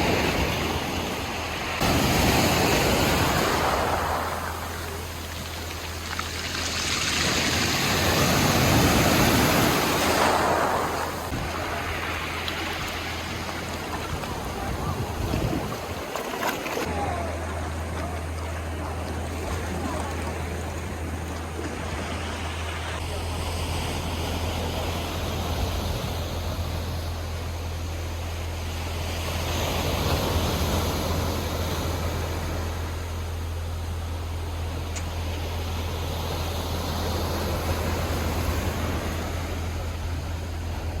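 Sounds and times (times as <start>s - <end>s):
steady low hum: 0.0s - 41.0s
steady low rumble: 0.0s - 41.0s
waves washing on beach: 0.0s - 41.0s
faint voices: 10.2s - 25.6s.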